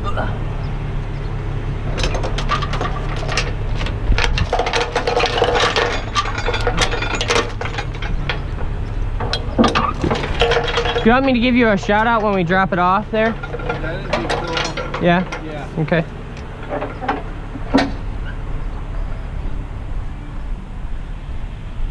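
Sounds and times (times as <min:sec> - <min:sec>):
truck engine running: 0:00.0 - 0:21.9
metal chains clinking: 0:01.9 - 0:18.0.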